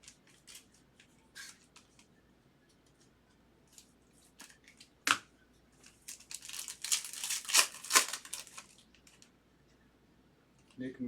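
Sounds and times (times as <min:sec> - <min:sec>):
wrapper crinkling and tearing: 0:00.0 - 0:00.8, 0:05.8 - 0:09.2.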